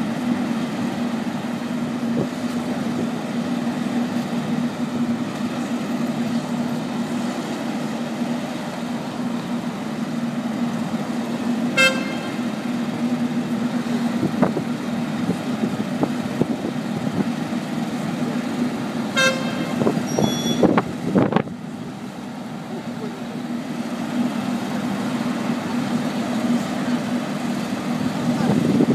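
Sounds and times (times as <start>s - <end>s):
vehicle engine running: 0.0s - 28.9s
horn toots: 11.7s - 12.5s, 19.1s - 20.8s.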